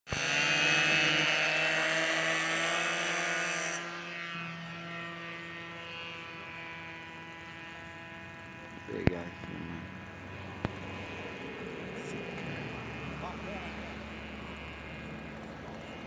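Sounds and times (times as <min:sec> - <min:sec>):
model airplane motor droning: 0:00.1 - 0:16.0.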